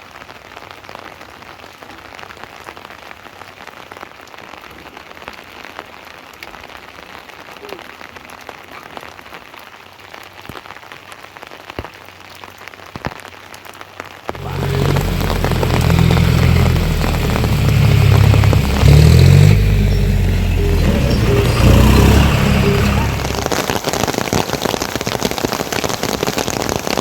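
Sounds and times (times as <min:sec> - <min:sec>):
steady rain: 0:00.0 - 0:27.0
loud music with deep bass: 0:14.4 - 0:23.6.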